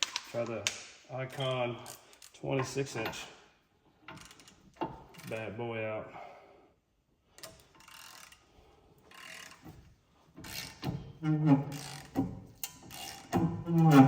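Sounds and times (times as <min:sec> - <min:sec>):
hand ratchet clicking: 0:07.4 - 0:14.0
low-pitched strained sounds: 0:10.8 - 0:14.0.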